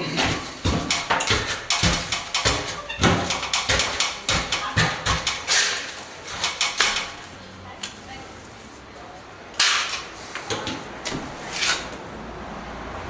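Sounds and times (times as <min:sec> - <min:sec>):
dull knocks: 0:00.2 - 0:05.5
trowel scraping plaster: 0:00.2 - 0:07.3, 0:11.1 - 0:12.0.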